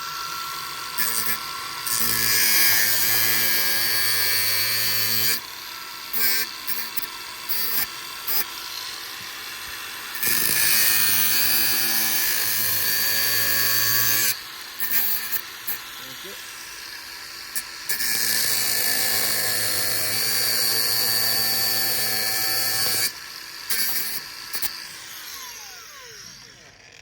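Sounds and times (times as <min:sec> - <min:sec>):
electric power tool running: 0:00.0 - 0:27.0.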